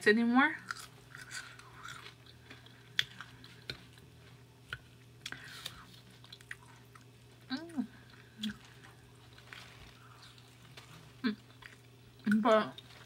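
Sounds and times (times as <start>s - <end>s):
person chewing food: 0.6s - 13.0s.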